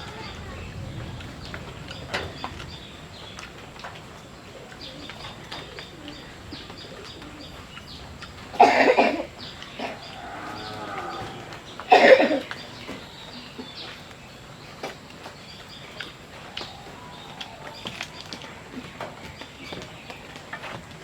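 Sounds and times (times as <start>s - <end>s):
person coughing: 8.6s - 10.0s, 11.9s - 12.5s.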